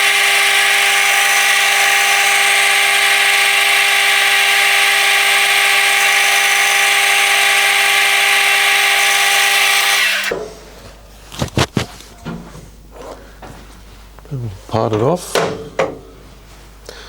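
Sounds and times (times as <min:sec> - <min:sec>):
metal lathe whining: 0:00.0 - 0:10.5.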